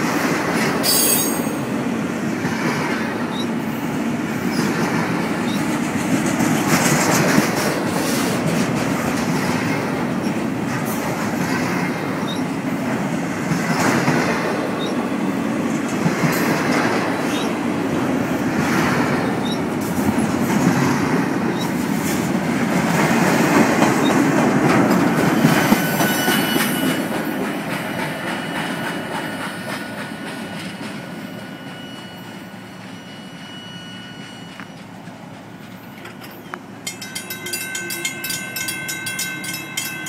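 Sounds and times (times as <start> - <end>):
train wheels clacking on rails: 0.0 - 40.0
crossing bell ringing: 0.8 - 1.8, 31.2 - 35.1, 35.7 - 40.0.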